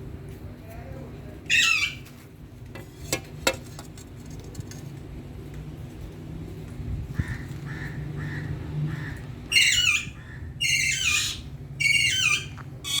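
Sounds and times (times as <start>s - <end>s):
parakeet squawking harshly: 1.5s - 2.0s, 7.3s - 13.0s.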